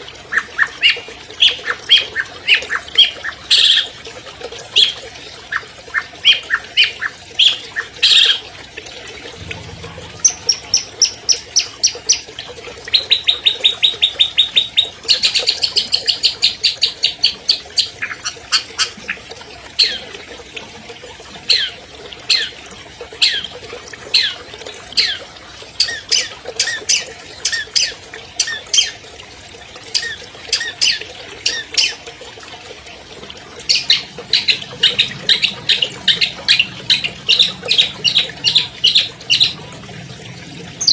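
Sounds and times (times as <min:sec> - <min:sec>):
bird singing varied song: 0:33.7 - 0:39.6.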